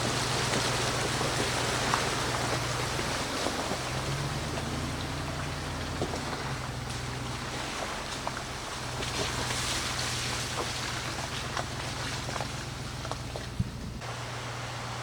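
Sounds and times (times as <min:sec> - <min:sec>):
tyres crunching on gravel: 0:00.0 - 0:14.2
pickup engine drone: 0:00.0 - 0:15.0.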